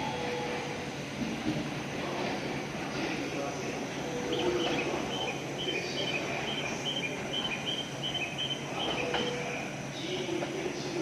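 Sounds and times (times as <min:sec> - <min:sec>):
station platform hum: 0:00.0 - 0:11.0.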